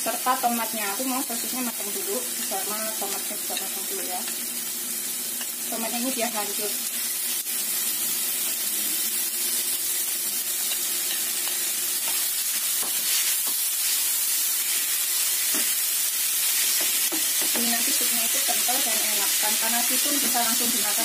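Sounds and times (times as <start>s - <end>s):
tomato and sausage sizzling in oil: 0.0s - 21.0s
spatula knocking and scraping pan: 16.7s - 17.8s.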